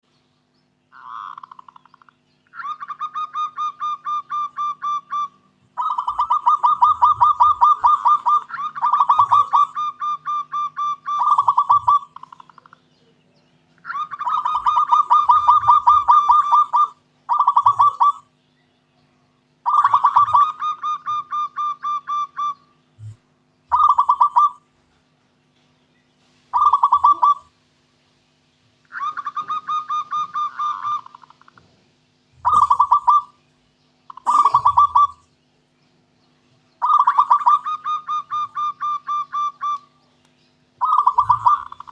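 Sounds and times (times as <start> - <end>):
dove rapid staccato cooing: 0.9 - 12.8, 13.8 - 18.4, 19.6 - 25.1, 26.5 - 27.6, 28.8 - 33.4, 34.1 - 35.3, 36.8 - 40.0, 40.8 - 41.9.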